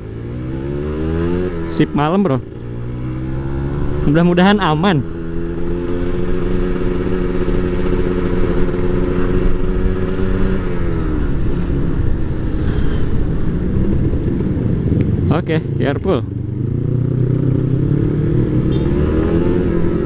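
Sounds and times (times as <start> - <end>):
motorcycle engine running: 0.0 - 20.0
road and wind noise: 0.0 - 20.0.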